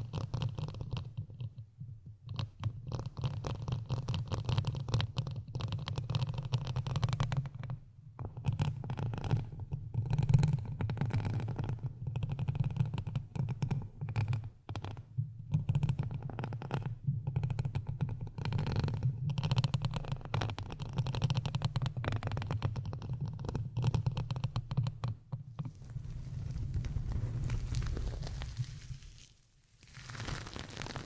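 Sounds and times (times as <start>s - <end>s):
scratching and crackling: 25.6s - 31.0s
low rumble: 25.8s - 29.3s.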